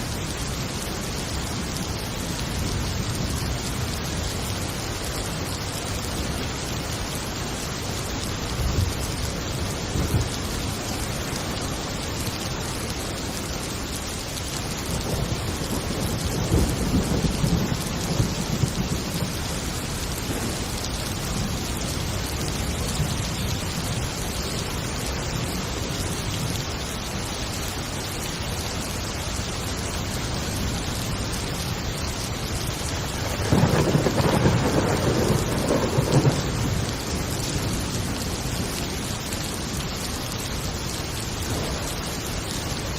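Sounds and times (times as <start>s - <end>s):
heavy rain falling: 0.0s - 42.9s
rolling thunder: 14.9s - 19.4s, 33.1s - 38.8s.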